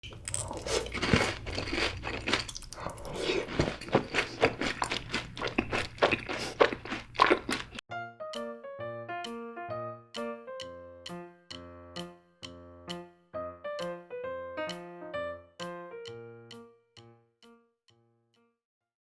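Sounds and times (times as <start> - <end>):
crunching and chewing snacks: 0.0 - 7.8
light keyboard music: 7.9 - 18.3.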